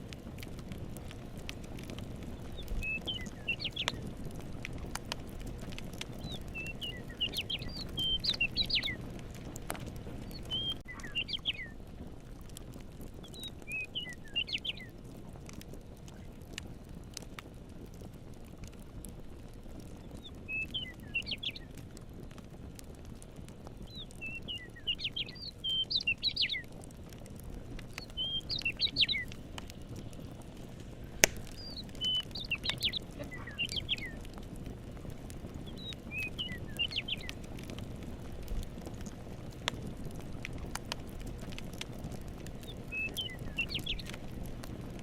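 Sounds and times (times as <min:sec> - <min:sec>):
campfire crackling pops: 0:00.0 - 0:45.0
songbird warbling: 0:06.2 - 0:09.0, 0:10.3 - 0:11.7, 0:28.0 - 0:29.3, 0:31.4 - 0:34.2.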